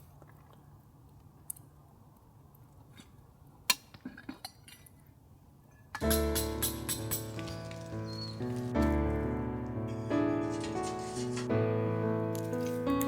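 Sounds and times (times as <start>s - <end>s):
utensils clinking: 6.0s - 8.6s.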